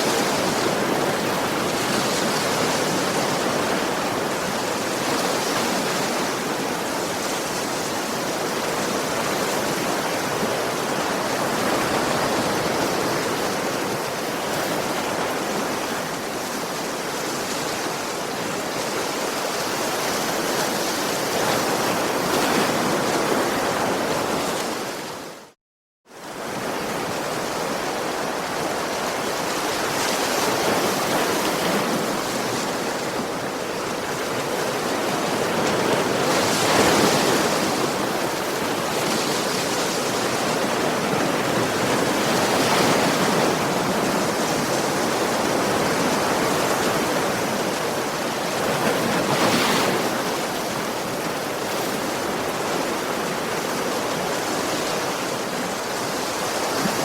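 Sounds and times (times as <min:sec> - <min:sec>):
ocean waves washing: 0:26.2 - 0:57.0.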